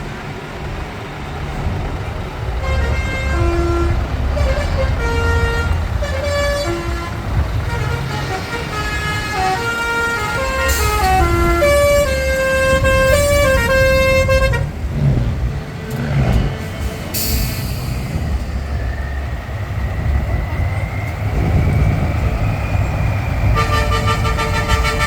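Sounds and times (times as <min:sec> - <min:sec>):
diesel truck engines: 0:00.0 - 0:25.0
musical air horn tune: 0:02.6 - 0:18.7, 0:23.6 - 0:25.0.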